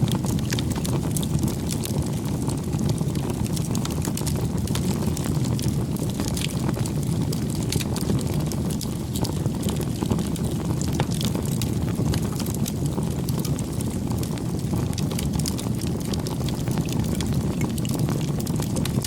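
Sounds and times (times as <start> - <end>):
wood fire crackling and popping: 0.0 - 19.0.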